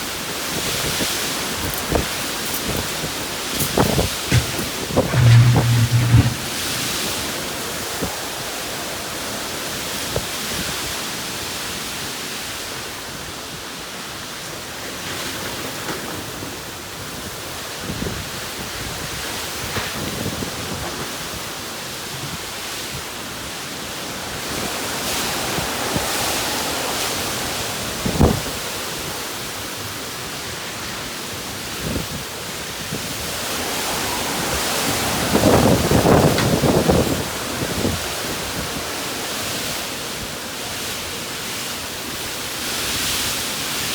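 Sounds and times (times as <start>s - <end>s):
short thumps: 3.6s - 6.7s.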